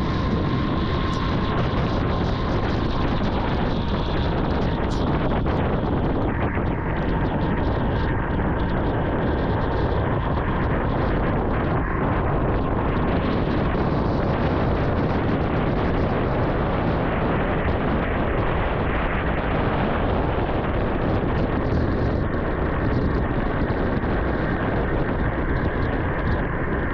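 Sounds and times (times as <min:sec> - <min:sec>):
motorcycle road noise: 0:00.0 - 0:26.9
wind rush on microphone: 0:00.0 - 0:26.9.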